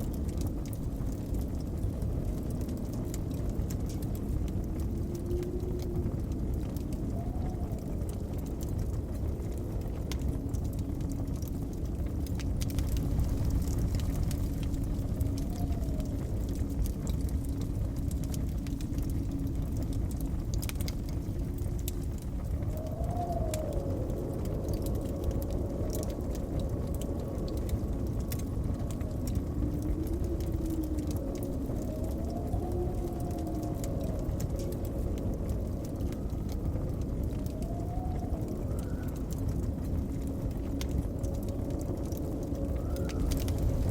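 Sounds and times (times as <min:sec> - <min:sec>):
wind howling: 0:00.0 - 0:43.9
wood fire crackling: 0:00.0 - 0:43.9.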